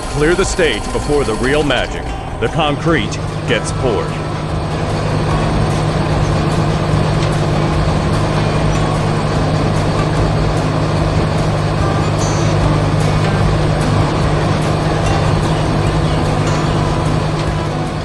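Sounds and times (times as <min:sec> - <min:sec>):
diesel engine rumbling: 0:00.0 - 0:18.0.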